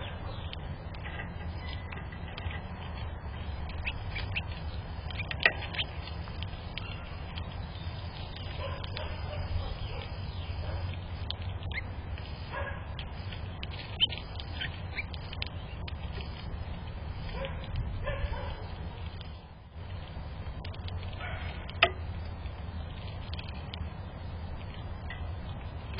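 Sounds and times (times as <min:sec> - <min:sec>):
high bird chirps: 0:03.6 - 0:11.9, 0:13.8 - 0:16.0
lower-pitched bird calls: 0:03.7 - 0:12.0.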